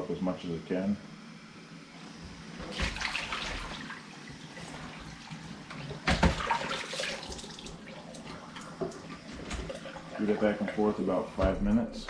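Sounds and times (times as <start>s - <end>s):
water gushing through a hose: 6.2s - 8.7s.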